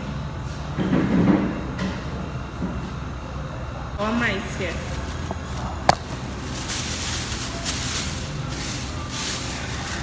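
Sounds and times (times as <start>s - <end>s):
low rumble and hiss: 3.2s - 10.0s.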